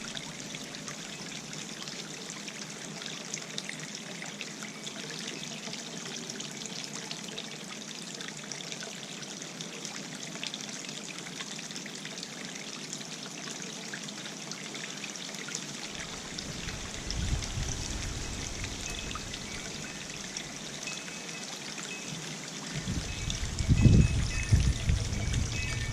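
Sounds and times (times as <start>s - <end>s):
fountain water trickling: 0.0s - 25.9s
wind rumbling on microphone: 16.0s - 19.8s, 22.7s - 25.9s.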